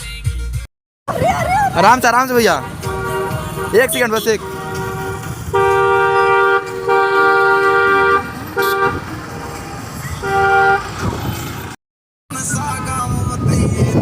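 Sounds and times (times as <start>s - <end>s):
vehicle horn honking: 2.2s - 11.5s.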